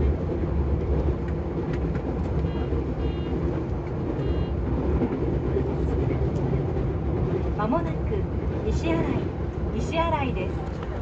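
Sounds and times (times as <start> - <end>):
train wheels rumbling on rail: 0.0 - 11.0
short high beeps: 2.4 - 3.4, 4.2 - 4.6.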